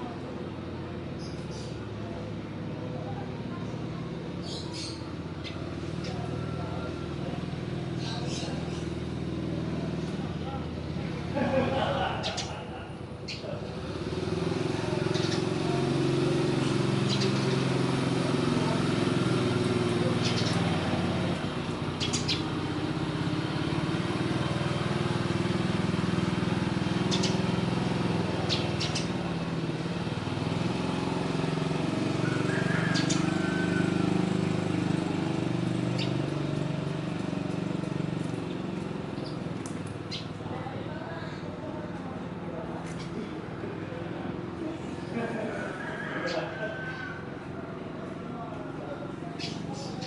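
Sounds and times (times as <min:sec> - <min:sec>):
vehicle engine running: 0:00.0 - 0:50.0.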